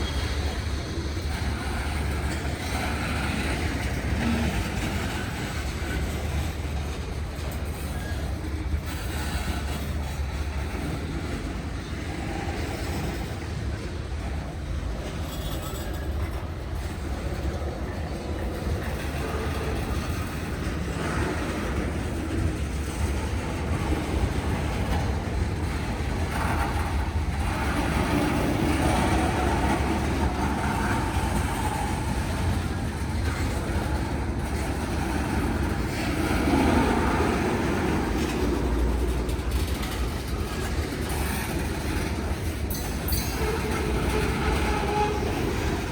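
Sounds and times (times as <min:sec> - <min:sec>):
freight train wheels rumbling on rails: 0:00.0 - 0:45.9.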